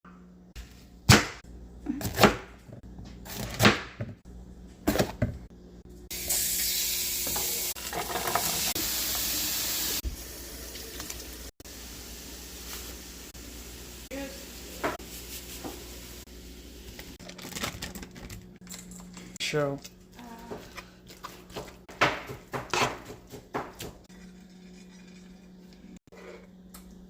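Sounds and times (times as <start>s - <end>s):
food sizzling in a pan: 6.1s - 17.2s
sharp kitchen knocks: 21.8s - 24.1s.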